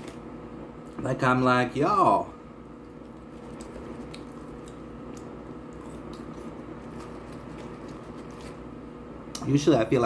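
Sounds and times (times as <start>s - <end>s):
steady low hum: 0.0s - 10.0s
chewing with wet mouth sounds: 2.8s - 8.7s.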